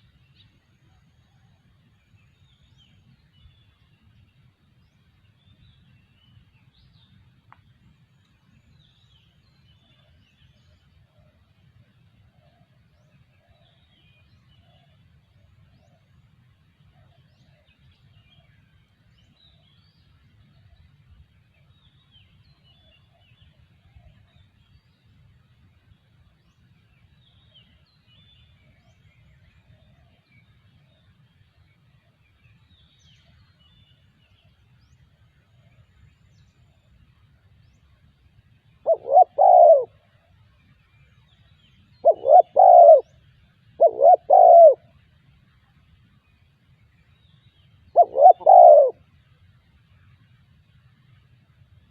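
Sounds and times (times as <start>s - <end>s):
faint low background noise: 0.0s - 51.9s
dove cooing: 38.8s - 40.0s, 42.0s - 43.1s, 43.8s - 44.8s, 48.0s - 49.0s.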